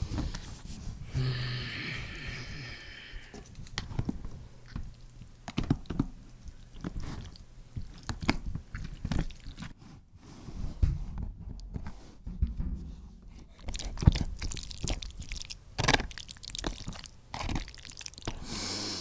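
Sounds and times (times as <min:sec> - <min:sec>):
crisp crunching and chewing: 0:03.1 - 0:09.8, 0:13.6 - 0:18.6.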